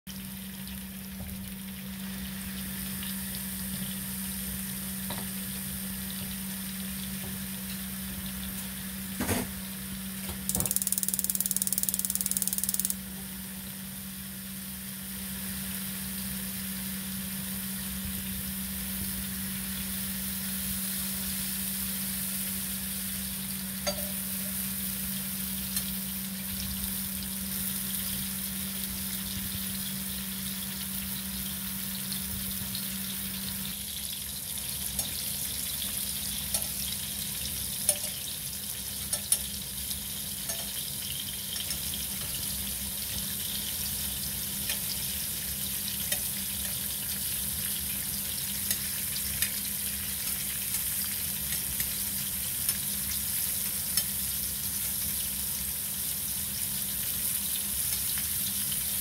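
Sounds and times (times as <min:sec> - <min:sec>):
low steady hum: 0:00.1 - 0:30.8
mushrooms sizzling in oil: 0:00.1 - 0:59.0.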